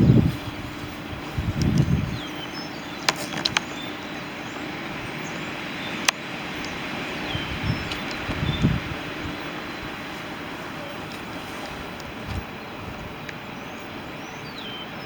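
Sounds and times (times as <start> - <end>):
wind gust on microphone: 0.0 - 4.2, 6.4 - 14.2
sharp clicks: 1.5 - 2.3, 2.9 - 3.8, 7.8 - 8.8.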